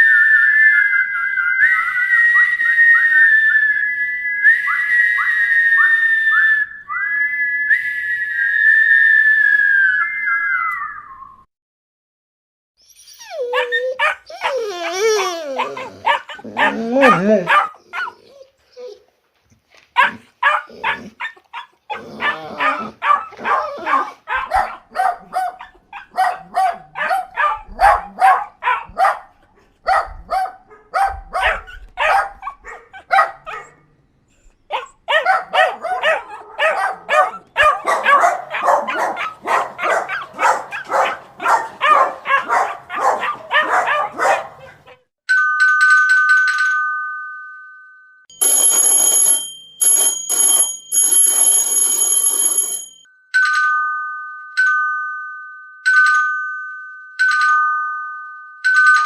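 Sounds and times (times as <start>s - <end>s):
dog barking rapidly: 15.7s - 18.2s, 20.0s - 33.8s, 34.7s - 45.0s.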